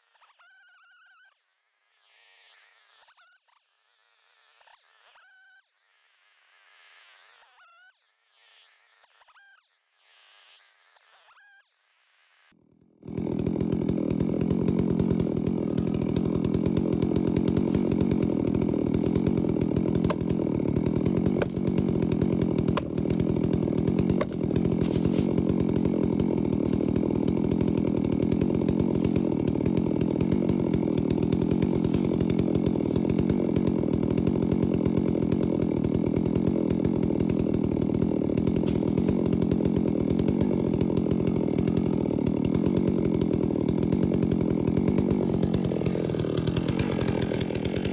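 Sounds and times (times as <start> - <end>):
chainsaw cutting wood: 12.5 - 47.9.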